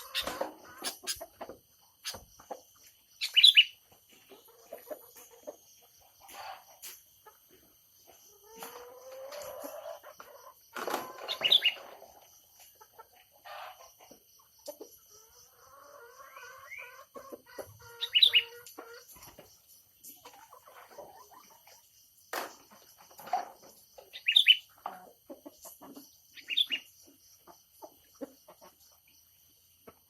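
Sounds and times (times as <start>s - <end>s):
birds calling: 0.0s - 3.8s, 10.8s - 11.9s, 17.8s - 18.7s, 24.0s - 24.7s, 26.3s - 26.9s.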